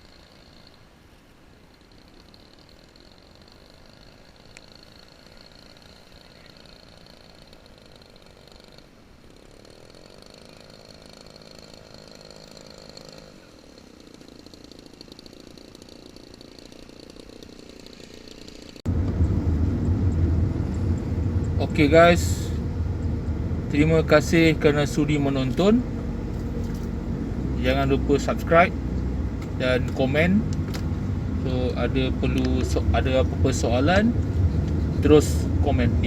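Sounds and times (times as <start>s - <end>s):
model aircraft engine buzz: 0.0s - 36.0s
loud low rumble: 18.9s - 36.0s.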